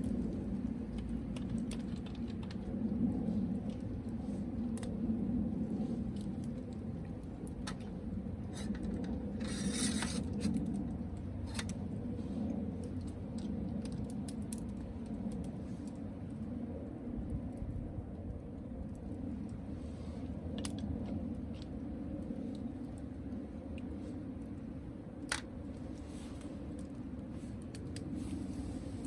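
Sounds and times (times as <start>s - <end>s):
campfire crackling: 0.0s - 29.0s
steady low rumble: 0.0s - 29.0s.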